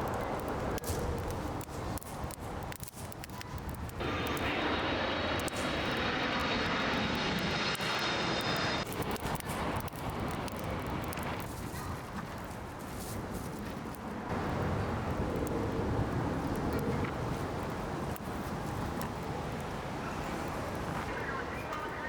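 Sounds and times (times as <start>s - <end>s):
jet engines roaring with whine: 3.9s - 12.5s, 13.9s - 22.0s.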